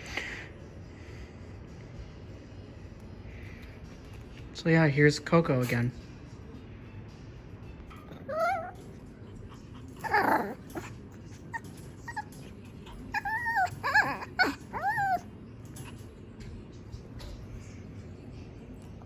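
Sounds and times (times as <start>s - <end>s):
puppy whining: 7.9s - 19.0s
puppy barking: 8.1s - 12.4s, 13.0s - 15.3s.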